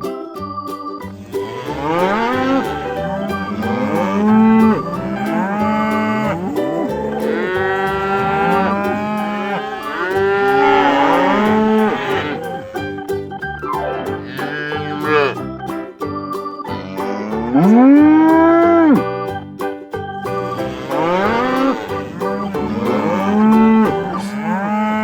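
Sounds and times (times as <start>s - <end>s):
light background music: 0.0s - 24.4s
cows mooing: 1.4s - 12.8s, 14.2s - 15.4s, 20.6s - 25.0s.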